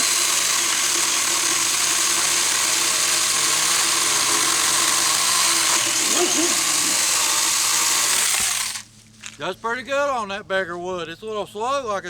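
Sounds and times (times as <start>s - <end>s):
electric chainsaw sawing log: 0.0s - 8.9s.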